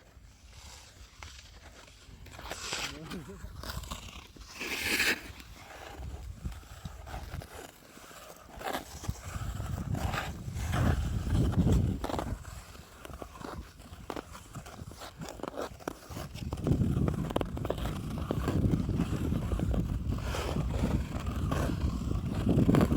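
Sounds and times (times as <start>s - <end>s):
skate blades scraping ice: 0.0s - 22.9s
wind rumble on microphone: 5.8s - 7.6s, 8.9s - 15.3s, 16.1s - 22.9s.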